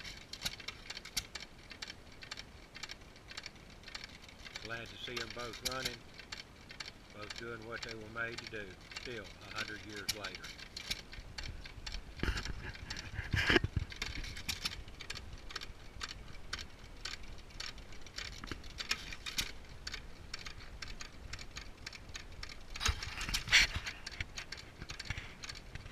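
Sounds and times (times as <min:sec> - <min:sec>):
old engines clicking: 0:00.0 - 0:25.9.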